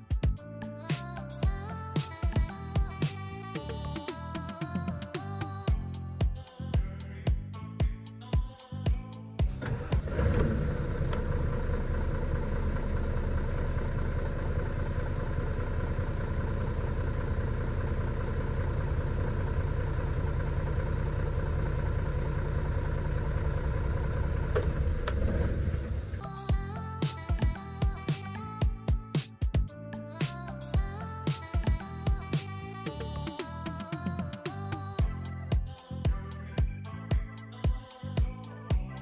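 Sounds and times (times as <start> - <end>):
diesel truck engine idling: 9.5 - 39.0.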